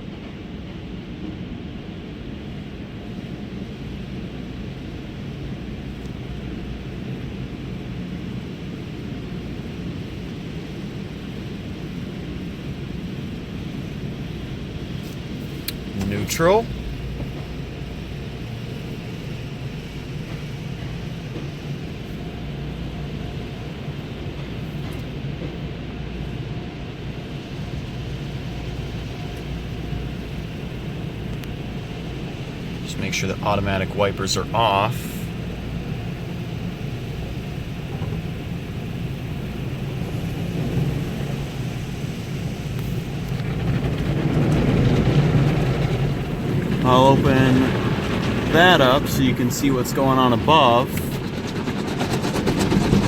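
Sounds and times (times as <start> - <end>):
car wash hum and rumble: 0.0 - 53.0
car engine idling: 29.1 - 53.0.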